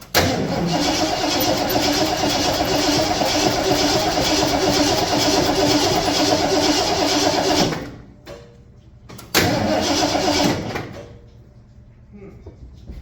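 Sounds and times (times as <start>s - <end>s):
starter cranking engine: 0.2s - 8.0s, 9.5s - 10.8s.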